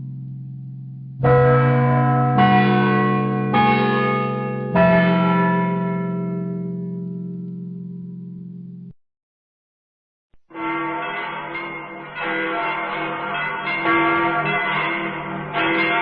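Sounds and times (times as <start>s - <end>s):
bell strikes: 10.5s - 16.0s.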